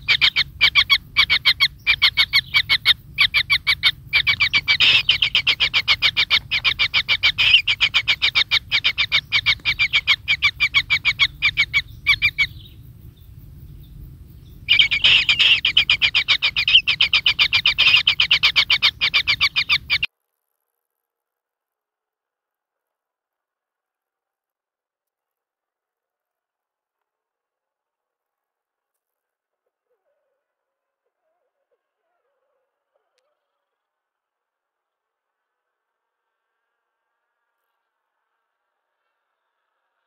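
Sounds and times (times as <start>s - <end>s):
nestlings high chirps: 0.0s - 20.1s.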